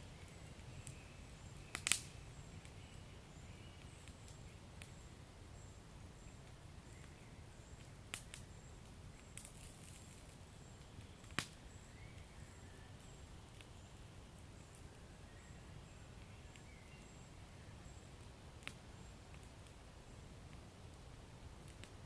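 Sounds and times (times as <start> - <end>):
wood fire crackling: 0.0 - 22.0
sharp fire pops: 1.6 - 2.7, 7.8 - 8.5, 9.2 - 11.8, 18.6 - 19.8, 21.6 - 22.0.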